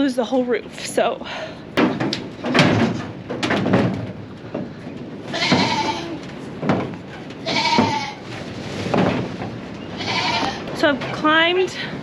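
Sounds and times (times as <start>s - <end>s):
sharp knocks: 1.8s - 8.1s
goats bleating: 5.3s - 6.2s, 7.4s - 8.3s, 10.0s - 10.7s.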